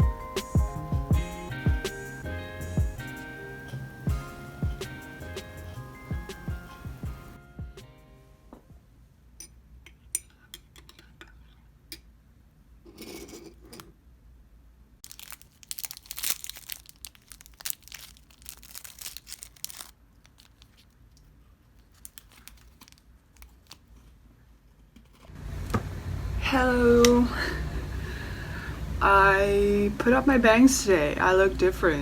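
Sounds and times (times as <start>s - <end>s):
crinkling and tearing: 15.0s - 24.2s.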